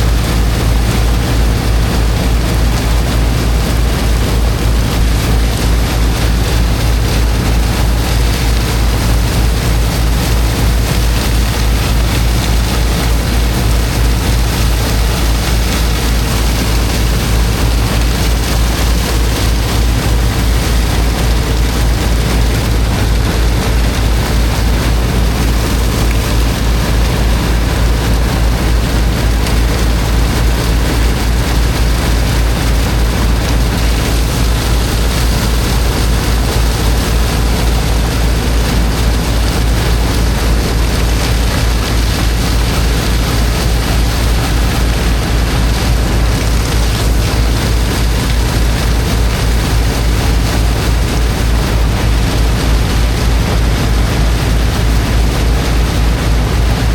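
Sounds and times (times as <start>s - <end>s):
water jet hissing: 0.0s - 56.9s
water pump engine pulsing: 0.0s - 56.9s.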